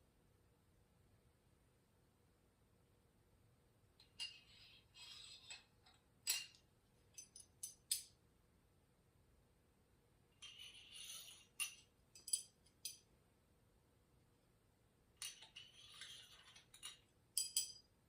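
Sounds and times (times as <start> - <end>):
metal rods sliding: 4.0 - 6.6, 10.4 - 12.5, 15.2 - 17.7
metal rod clinks: 11.5 - 13.0, 15.2 - 17.9.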